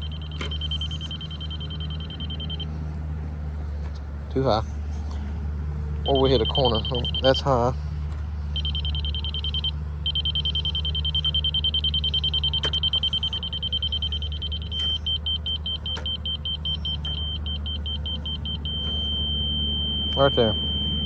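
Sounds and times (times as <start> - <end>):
laser receiver beeping: 0.0 - 2.7, 6.1 - 7.4, 8.6 - 21.0
engine idling: 0.0 - 21.0.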